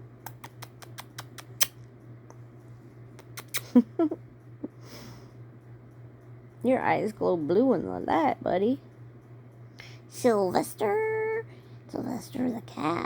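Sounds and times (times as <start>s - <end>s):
kitten clawing light clicks: 0.2s - 1.8s.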